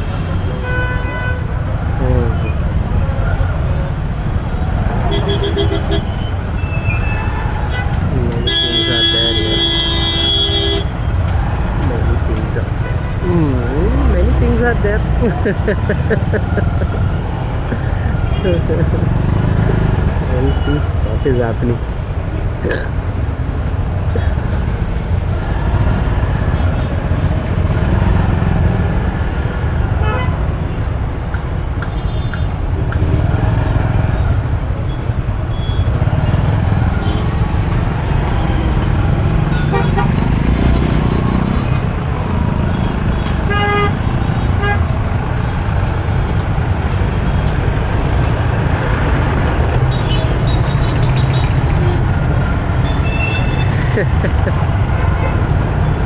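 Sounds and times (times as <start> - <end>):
traffic engines rumbling: 0.0 - 56.0
vehicle horns tooting: 5.0 - 11.0, 39.5 - 41.2, 52.8 - 54.1.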